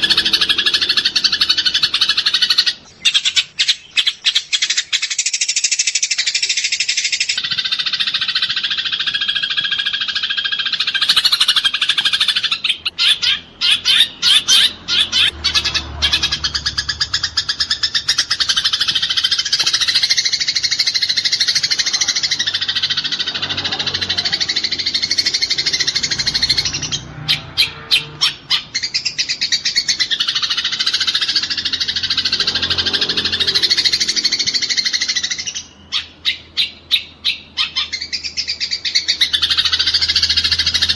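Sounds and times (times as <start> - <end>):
rapid chirps: 0.0 - 40.9
sparrows chattering harshly: 0.0 - 40.9.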